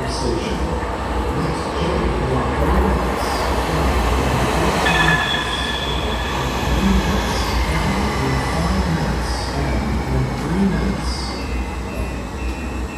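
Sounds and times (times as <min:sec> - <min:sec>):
train rumbling on rails: 0:00.0 - 0:12.9
high wheel squeal: 0:04.2 - 0:10.2.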